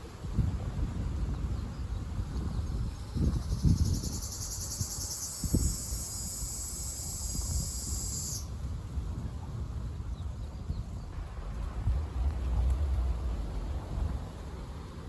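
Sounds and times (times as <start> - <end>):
wind rumble: 0.0 - 15.0
cicada buzzing: 3.3 - 8.5
low thumps: 11.1 - 14.9.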